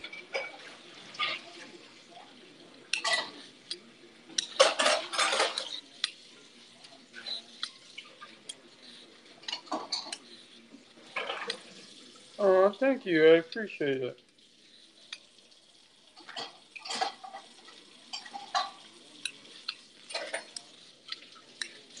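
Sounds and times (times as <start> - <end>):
dishes and cutlery clattering: 0.0 - 1.8, 2.9 - 6.2, 6.8 - 10.4, 11.0 - 11.9, 16.1 - 22.0.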